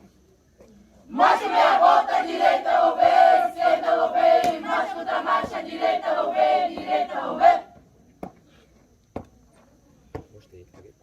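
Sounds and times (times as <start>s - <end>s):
young voices chanting in unison: 1.1s - 7.8s.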